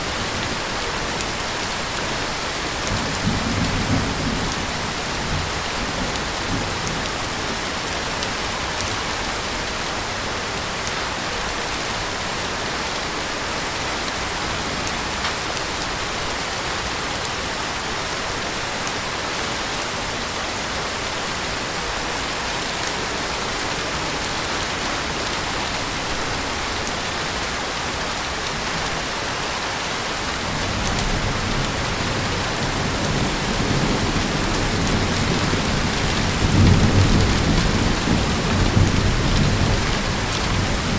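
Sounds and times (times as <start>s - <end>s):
heavy rain pouring: 0.0s - 40.9s
low rumble of thunder: 2.9s - 7.3s, 30.6s - 40.9s.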